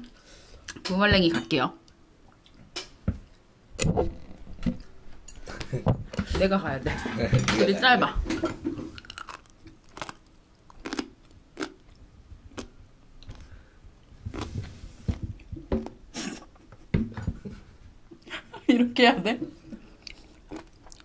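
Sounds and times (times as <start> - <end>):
chewing crunchy dried strips: 9.0 - 13.5, 20.0 - 21.0.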